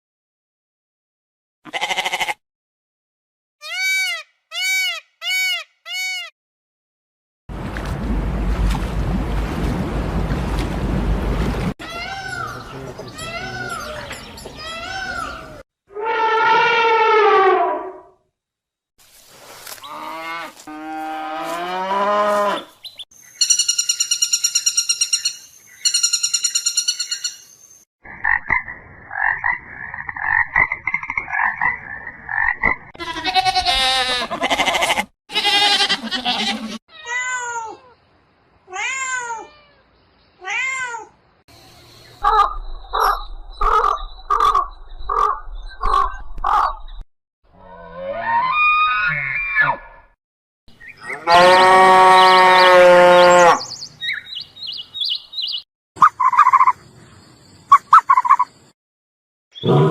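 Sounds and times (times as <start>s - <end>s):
long drawn-out animal call: 1.7s - 2.4s, 15.9s - 18.0s
rising and falling animal cries: 3.6s - 6.3s, 14.6s - 18.1s, 33.0s - 38.0s, 47.6s - 50.1s
lower pulsing calls: 41.6s - 47.0s, 53.6s - 56.9s, 57.7s - 58.6s.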